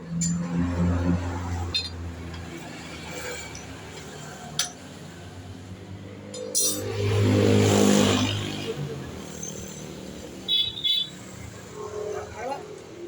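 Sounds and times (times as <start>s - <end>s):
metal tools clinking: 1.7s - 2.5s, 6.3s - 7.0s.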